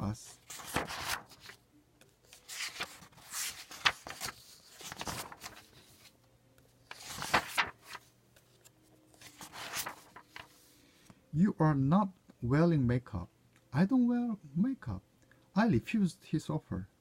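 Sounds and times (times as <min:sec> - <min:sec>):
book pages rustling: 0:00.3 - 0:06.2, 0:06.8 - 0:10.8.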